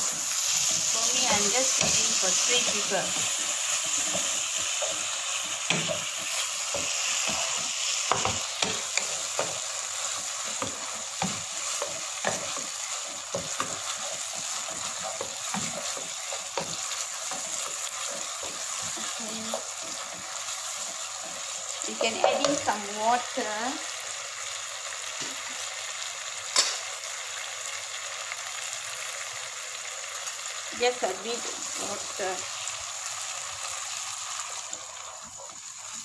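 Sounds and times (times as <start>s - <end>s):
wooden spatula scraping a pan: 0.0s - 23.4s
food sizzling in a wok: 0.0s - 36.0s.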